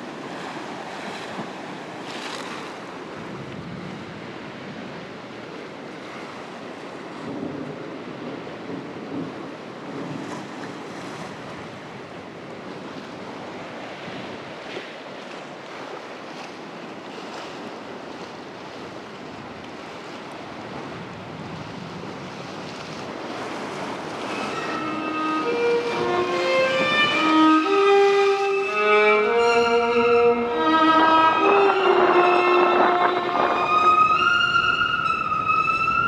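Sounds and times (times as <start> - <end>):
steady rushing noise: 23.9 - 36.0
bowed violin notes: 24.1 - 36.0.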